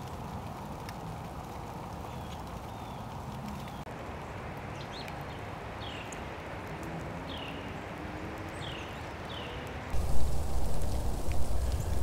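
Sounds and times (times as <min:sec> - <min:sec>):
bird calling with sliding notes: 0:10.0 - 0:12.0
steady background rush: 0:10.0 - 0:12.0.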